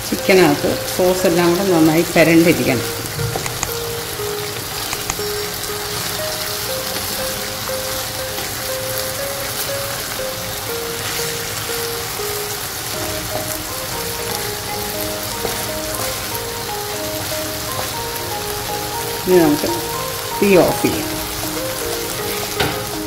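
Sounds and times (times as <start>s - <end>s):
background music melody: 0.0s - 23.0s
chicken sizzling in a pan: 0.1s - 23.0s.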